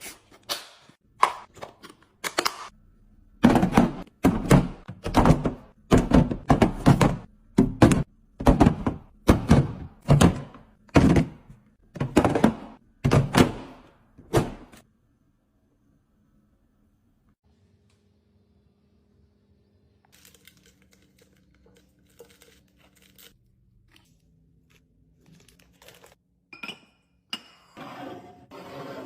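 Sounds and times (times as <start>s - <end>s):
items thunking and knocking: 3.4s - 14.8s.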